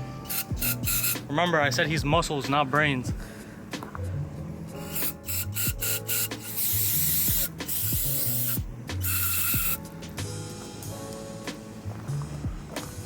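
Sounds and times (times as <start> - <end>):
background music: 0.0 - 13.0
hissing spray bursts: 0.2 - 1.3, 4.8 - 9.9.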